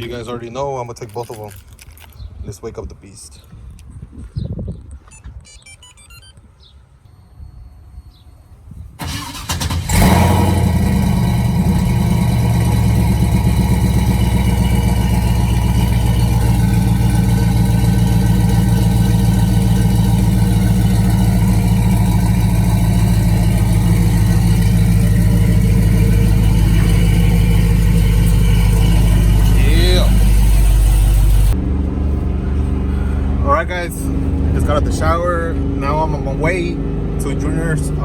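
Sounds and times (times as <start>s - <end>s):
truck engine cranking and idling: 8.9s - 38.0s.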